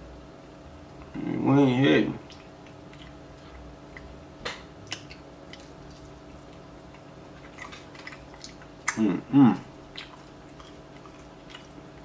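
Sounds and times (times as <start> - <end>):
person biting and chewing: 4.8 - 9.1, 9.8 - 12.0.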